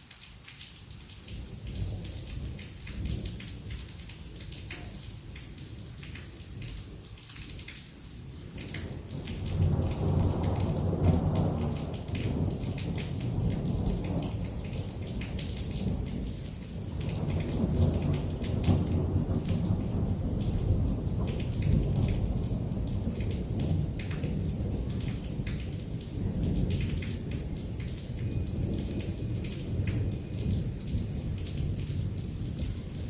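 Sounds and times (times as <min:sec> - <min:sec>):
heavy rain falling: 0:00.0 - 0:33.0
raindrops ticking on a surface: 0:00.0 - 0:33.0
rolling thunder: 0:08.9 - 0:33.0.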